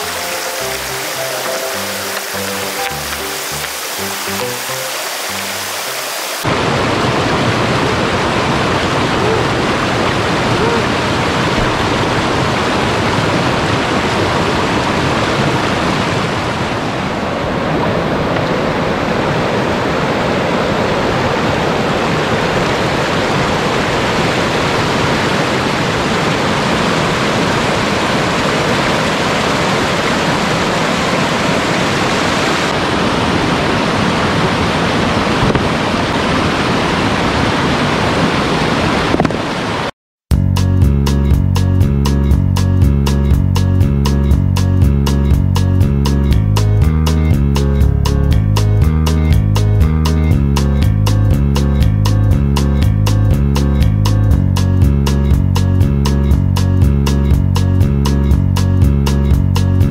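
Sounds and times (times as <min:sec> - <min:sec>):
stream rushing water: 0:00.0 - 0:39.9.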